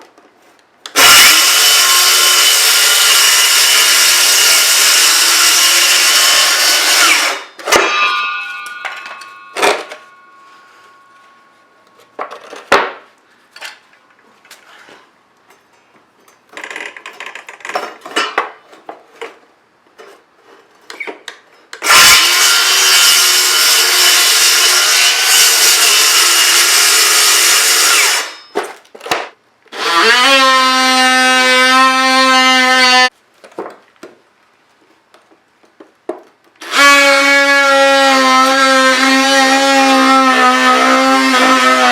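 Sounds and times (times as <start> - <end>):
power tool cutting plywood: 0.9 - 7.5, 21.8 - 28.4, 29.7 - 33.1, 36.6 - 41.9.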